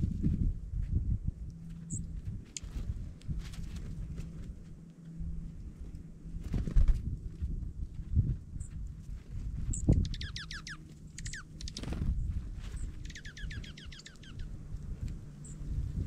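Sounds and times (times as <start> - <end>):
bird trills: 9.7 - 12.0, 12.7 - 14.6.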